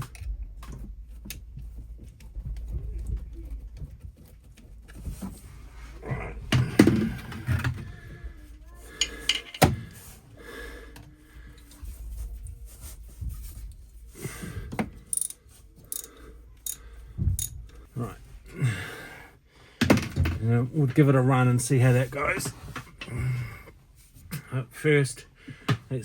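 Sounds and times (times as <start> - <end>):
tools knocking and scraping: 9.0 - 9.9, 14.7 - 17.8.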